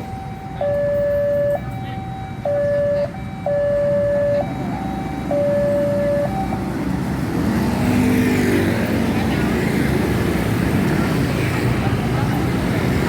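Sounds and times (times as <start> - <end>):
level crossing two-tone alarm: 0.0 - 6.7
road traffic rumble: 0.0 - 13.0.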